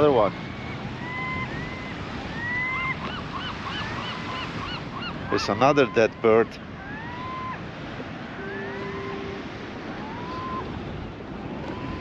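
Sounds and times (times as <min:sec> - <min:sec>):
ocean surf on beach: 0:00.0 - 0:12.0
faint rising whistled calls: 0:00.2 - 0:06.2, 0:06.8 - 0:07.6, 0:08.4 - 0:10.7.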